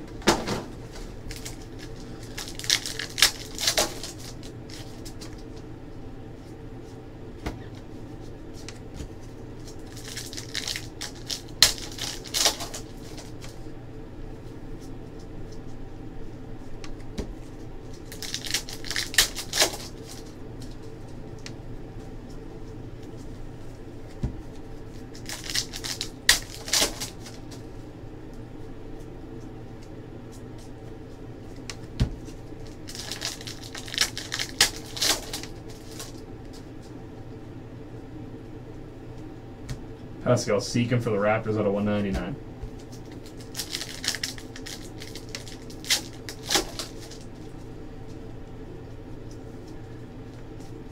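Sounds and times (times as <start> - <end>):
wrappers crinkling: 1.1 - 5.6, 8.5 - 13.7, 17.5 - 21.1, 24.8 - 27.7, 31.4 - 36.6, 42.8 - 48.2
card packs torn open: 1.3 - 5.3, 9.6 - 13.6, 18.0 - 20.3, 25.1 - 27.4, 32.6 - 36.2, 42.8 - 47.3.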